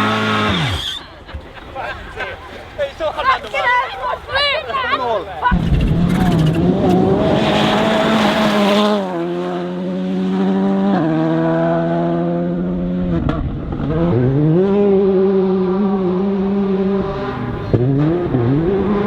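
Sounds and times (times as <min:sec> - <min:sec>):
rally car engine running hard: 0:05.6 - 0:19.0.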